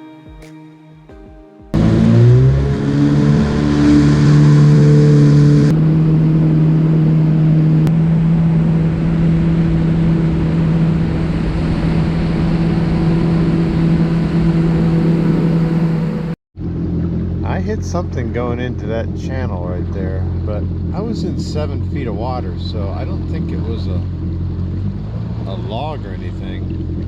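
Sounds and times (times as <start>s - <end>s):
jet ski engine running: 1.7s - 27.0s
water and wind noise: 5.7s - 16.3s.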